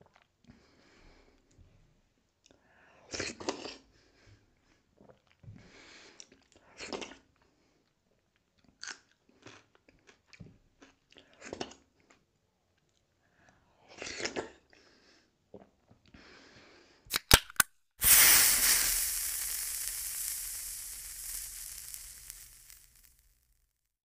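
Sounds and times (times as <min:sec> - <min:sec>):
loud burst of hissing noise: 0:18.0 - 0:23.6.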